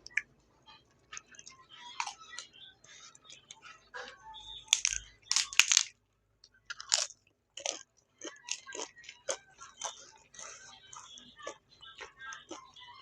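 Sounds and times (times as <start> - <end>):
crunchy chewing: 1.0 - 3.8, 4.6 - 5.9, 6.5 - 13.0
crunchy bites: 2.0 - 2.5, 4.6 - 5.9, 6.7 - 12.8.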